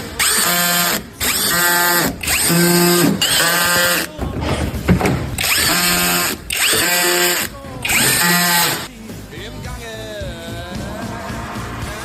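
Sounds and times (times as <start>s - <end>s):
power tool whirring bursts: 0.0s - 4.1s, 5.4s - 8.9s.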